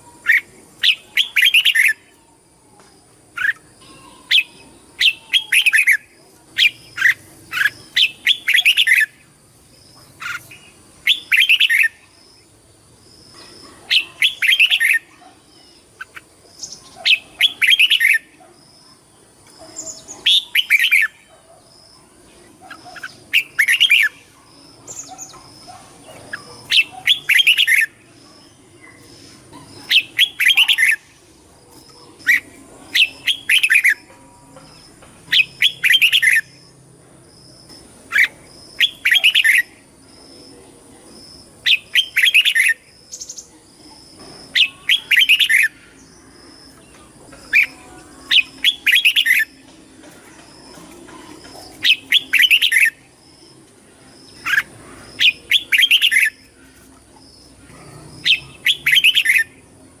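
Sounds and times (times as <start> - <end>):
bird singing warbled phrases: 0.0 - 36.8, 37.6 - 60.0.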